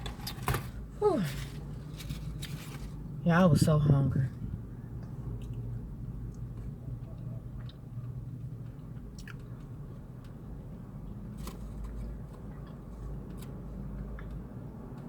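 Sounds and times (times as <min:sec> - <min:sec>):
steady low hum: 0:00.0 - 0:15.0
person chewing food: 0:05.0 - 0:10.3.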